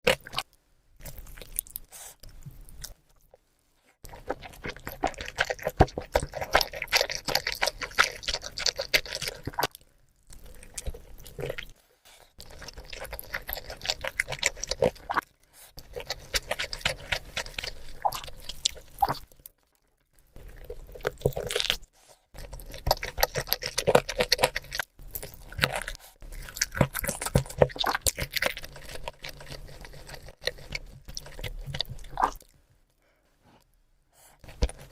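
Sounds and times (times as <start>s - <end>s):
chewing with crunching: 0.0s - 3.4s, 4.0s - 32.6s, 34.2s - 34.9s
wet mouth sounds: 4.0s - 11.8s, 20.4s - 32.5s.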